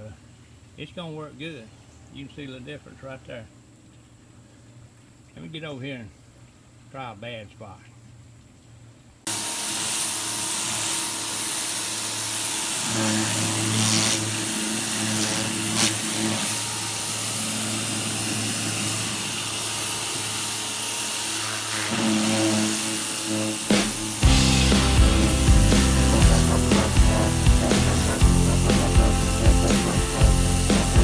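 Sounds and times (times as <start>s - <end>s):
pressure washer motor humming: 9.3s - 31.0s
water jet hissing on wood: 9.3s - 31.0s.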